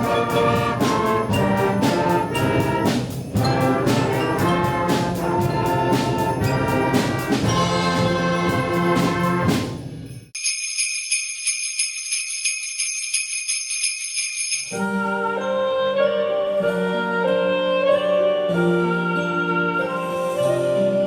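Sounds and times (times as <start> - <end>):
brass playing a tune: 0.0 - 9.8, 14.7 - 21.0
percussion beat: 0.0 - 15.4.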